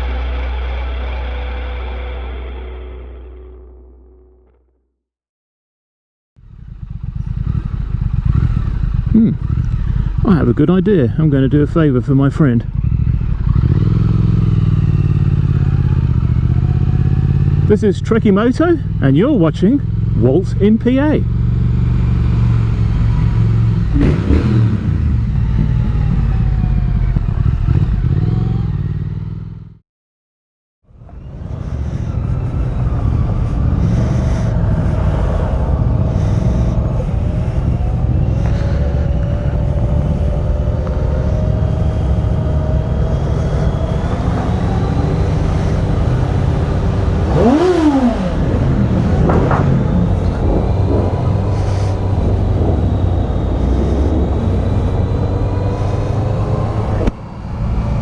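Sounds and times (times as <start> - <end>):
motorcycle engine: 0.0 - 4.7, 6.4 - 29.8, 30.9 - 58.0
wind noise while riding: 22.0 - 28.8, 31.0 - 58.0.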